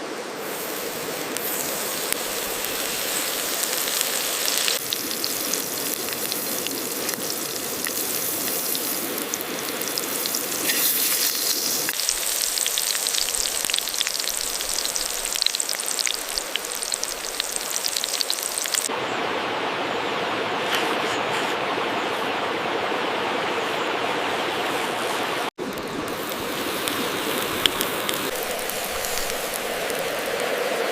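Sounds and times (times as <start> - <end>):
burger sizzling on hot stone: 0.4 - 18.9, 26.2 - 30.9.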